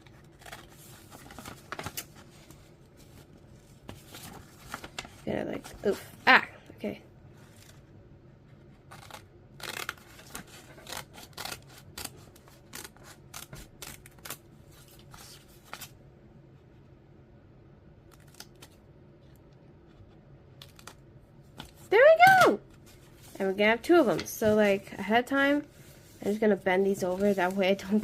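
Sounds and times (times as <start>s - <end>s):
scissors cutting paper: 8.9s - 14.4s.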